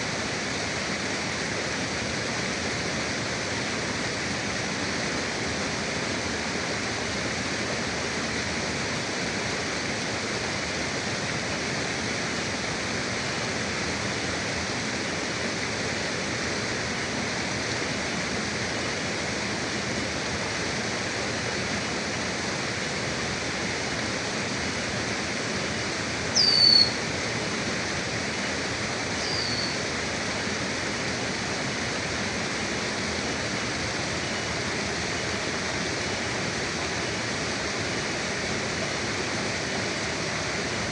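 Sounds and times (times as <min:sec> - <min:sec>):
forest river rushing: 0:00.0 - 0:40.9
bird calls sliding down in pitch: 0:26.4 - 0:27.0, 0:29.2 - 0:29.8.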